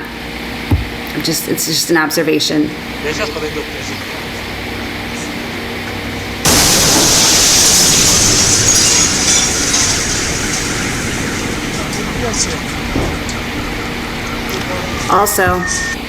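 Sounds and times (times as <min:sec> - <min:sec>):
crackling rattling noise: 0:06.4 - 0:16.0
sonic boom blast: 0:06.5 - 0:16.0.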